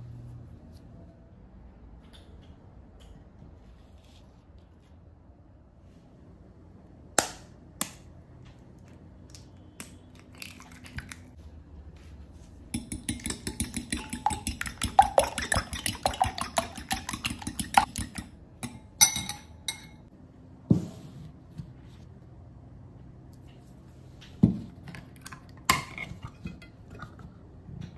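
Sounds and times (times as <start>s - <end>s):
fork whisking eggs in glass bowl: 12.8s - 19.8s.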